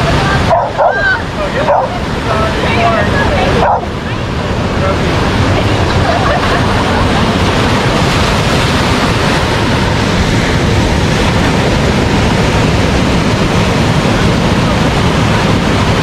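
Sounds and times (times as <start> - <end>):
waves breaking on beach: 0.0 - 16.0
wind buffeting microphone: 0.0 - 16.0.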